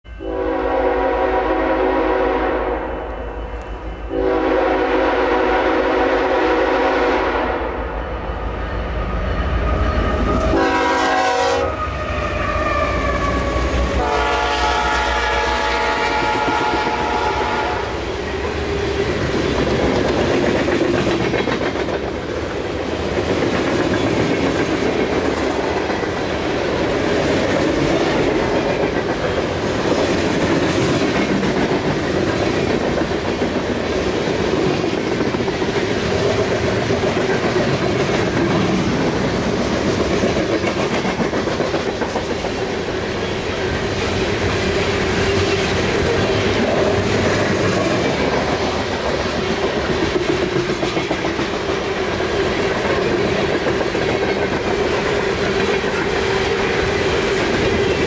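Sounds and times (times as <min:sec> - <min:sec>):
locomotive horn blasts: 0:00.1 - 0:07.9, 0:10.4 - 0:11.9, 0:12.8 - 0:18.0.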